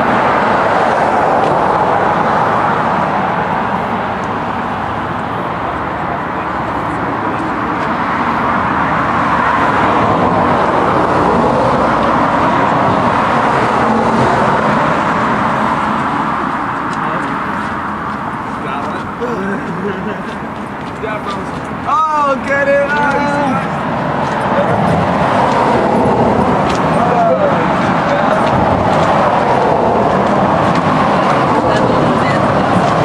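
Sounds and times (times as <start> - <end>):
road traffic noise: 0.0 - 33.0.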